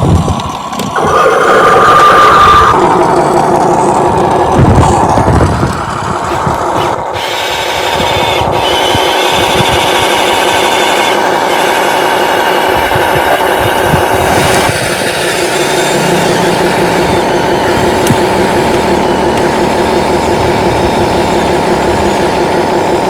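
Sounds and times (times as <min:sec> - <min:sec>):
electric motors whining: 0:00.0 - 0:23.0.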